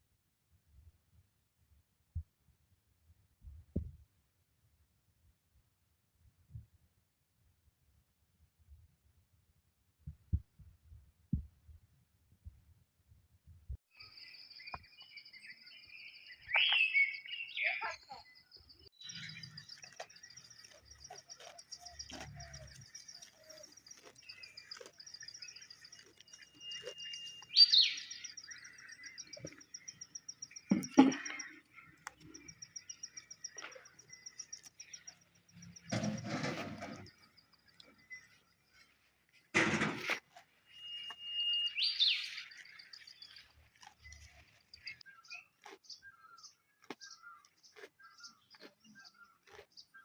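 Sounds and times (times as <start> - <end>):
birds calling and chirping: 14.0 - 50.0.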